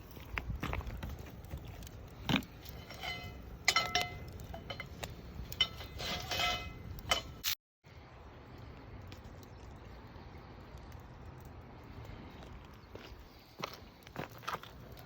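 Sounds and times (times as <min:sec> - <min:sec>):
metal objects clinking: 0:02.7 - 0:07.5.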